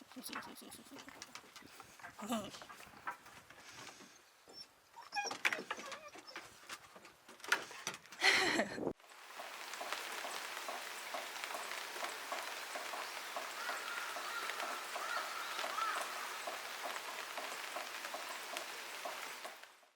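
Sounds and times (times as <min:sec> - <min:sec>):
steady rain: 0:08.2 - 0:19.9
raindrops ticking: 0:09.0 - 0:19.9.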